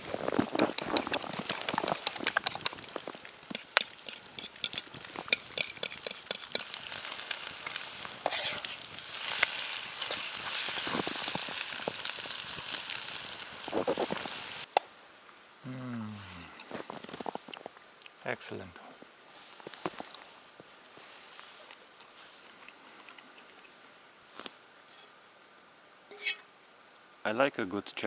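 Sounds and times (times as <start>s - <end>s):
bacon and eggs sizzling: 0.0s - 14.7s.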